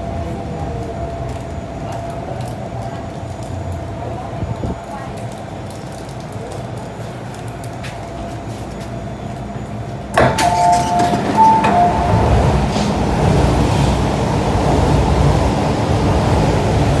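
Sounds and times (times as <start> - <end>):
train rumbling: 0.0 - 17.0
two-note electronic chime: 10.3 - 12.6.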